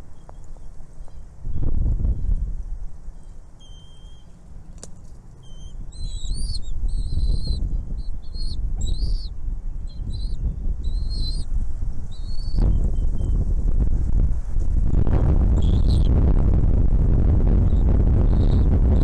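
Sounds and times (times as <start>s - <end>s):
nestlings chirping: 3.1s - 13.4s, 15.5s - 16.1s, 17.6s - 19.0s
low rumble: 3.8s - 19.0s.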